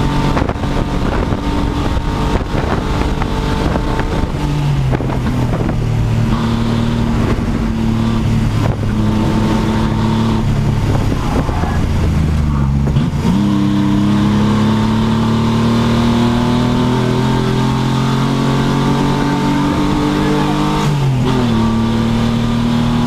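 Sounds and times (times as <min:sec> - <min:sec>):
race car engine revving: 0:00.0 - 0:23.0.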